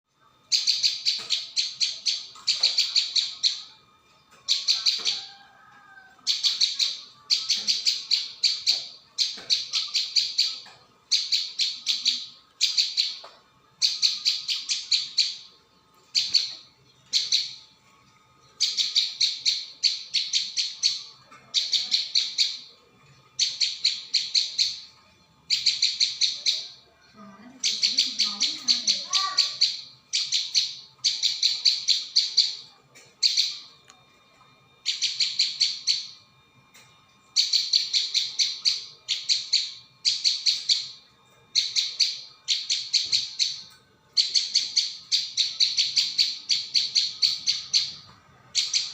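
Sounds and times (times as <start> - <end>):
bird calling with sharp high chips: 27.7 - 33.7.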